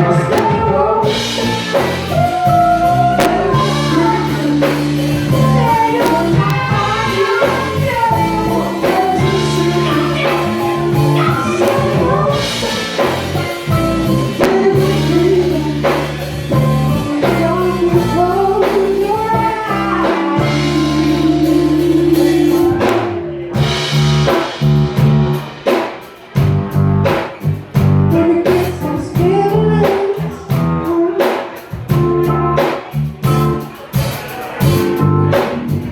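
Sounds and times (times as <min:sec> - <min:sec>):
distorted electric guitar: 0:00.0 - 0:16.9
person singing: 0:00.0 - 0:23.8, 0:28.1 - 0:32.4
bass guitar: 0:00.0 - 0:25.7, 0:26.4 - 0:35.9
drum kit: 0:00.0 - 0:35.9.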